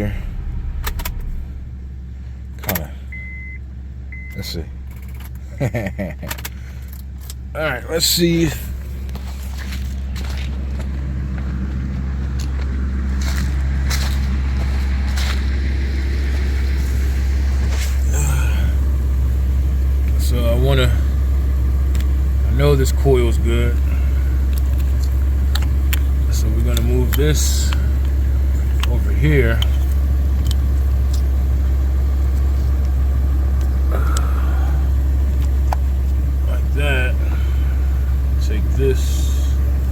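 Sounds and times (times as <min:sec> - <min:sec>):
low drone: 0:00.0 - 0:02.1, 0:12.5 - 0:22.1, 0:32.6 - 0:38.4
car engine idling rough: 0:00.0 - 0:39.9
sharp clicks: 0:00.8 - 0:01.4.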